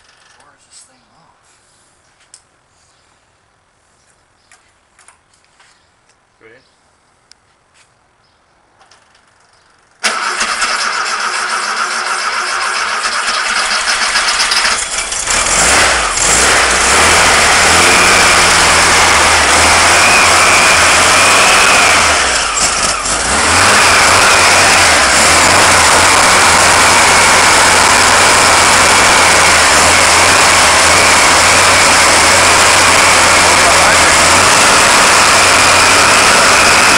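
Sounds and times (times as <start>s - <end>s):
car engine starting and running: 10.0s - 36.9s.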